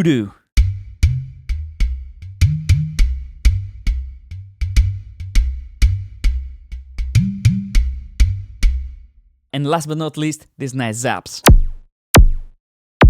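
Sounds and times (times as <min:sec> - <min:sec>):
synthesized hollow drum hits: 0:11.5 - 0:12.6.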